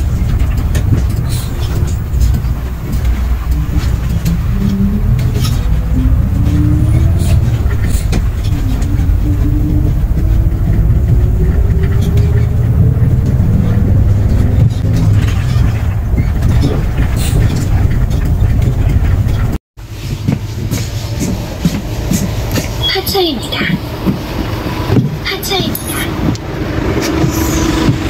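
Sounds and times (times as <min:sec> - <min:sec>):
rising whine: 0:00.0 - 0:19.6, 0:26.1 - 0:28.0
vehicle running rumble: 0:00.0 - 0:28.0.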